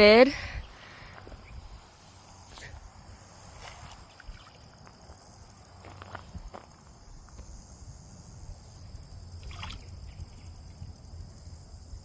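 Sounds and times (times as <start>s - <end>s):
light splashing on pond surface: 3.6s - 4.7s, 9.4s - 10.6s
sharp splash: 9.4s - 9.9s.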